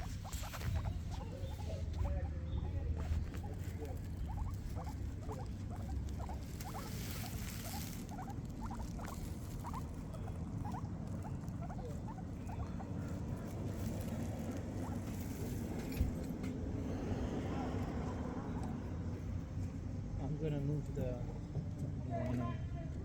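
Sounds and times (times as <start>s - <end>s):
guinea pig squeaks: 0.0s - 16.4s, 17.8s - 20.0s
rustling: 0.0s - 16.7s
guinea pigs chewing: 0.0s - 23.0s.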